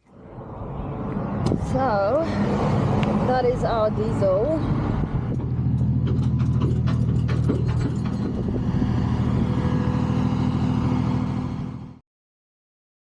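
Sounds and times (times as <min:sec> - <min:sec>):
vehicle engine idling: 0:02.9 - 0:12.0.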